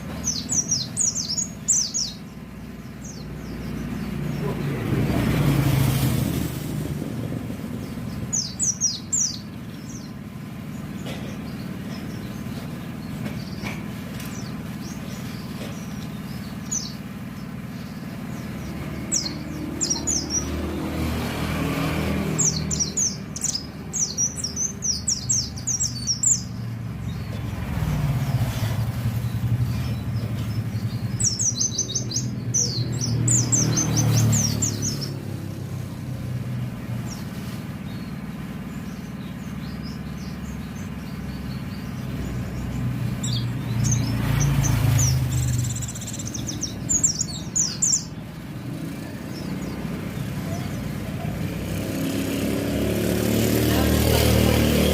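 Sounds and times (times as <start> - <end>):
small bird chirping fast: 0.0 - 5.6, 7.7 - 54.9
road traffic hum: 0.0 - 54.9
vehicles passing: 0.0 - 54.9.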